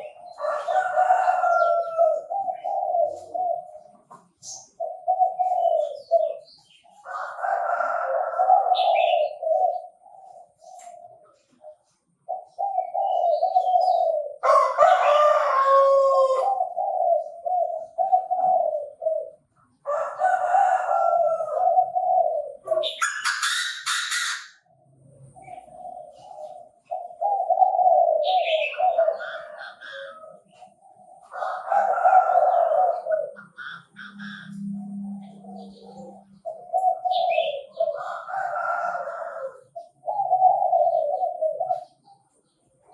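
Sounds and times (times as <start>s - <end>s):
francolin calling: 32.6s - 38.0s.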